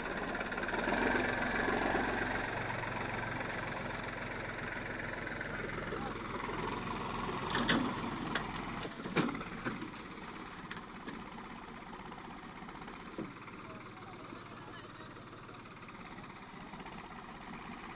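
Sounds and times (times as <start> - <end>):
diesel engine running: 0.0 - 17.9.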